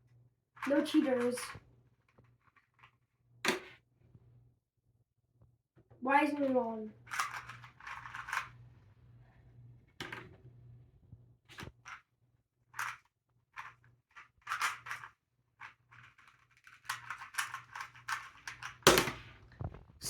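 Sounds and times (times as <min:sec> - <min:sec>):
faint low hum: 0:05.9 - 0:11.6.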